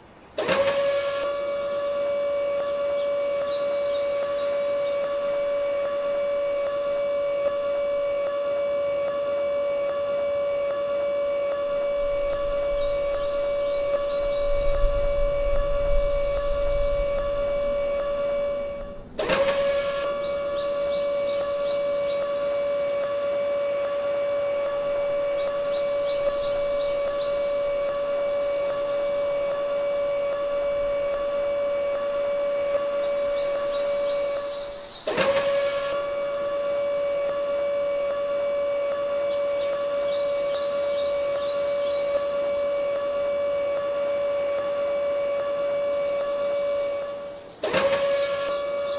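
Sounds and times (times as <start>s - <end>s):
small electric motor whining: 0.0s - 48.9s
low rumble: 12.0s - 21.5s.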